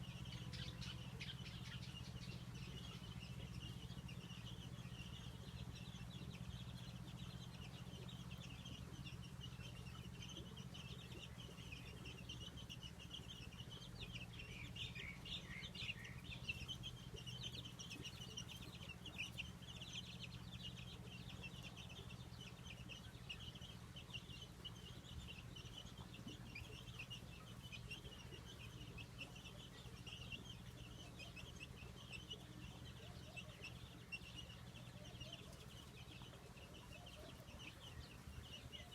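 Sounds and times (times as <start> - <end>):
birds chirping: 0.0 - 38.9
steady low hum: 0.0 - 38.9.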